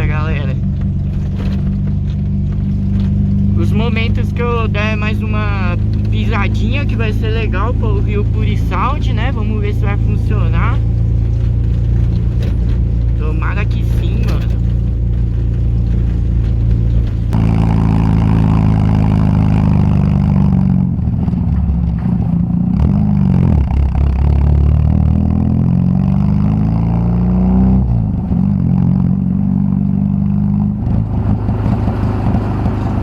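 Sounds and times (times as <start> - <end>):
car engine revving through exhaust: 0.0 - 33.0.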